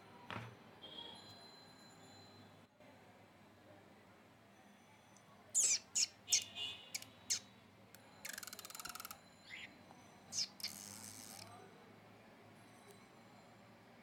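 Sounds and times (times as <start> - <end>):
harsh buzzy rasping calls: 5.6 - 7.4, 10.4 - 11.4
budgie chirping: 5.6 - 7.5, 8.3 - 9.7, 10.3 - 11.4.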